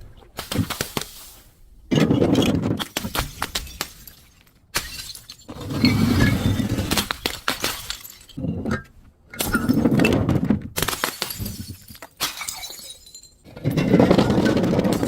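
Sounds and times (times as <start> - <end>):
glass breaking: 2.8 - 8.4, 10.8 - 15.0
glass shards clinking: 3.4 - 8.4, 11.0 - 13.5.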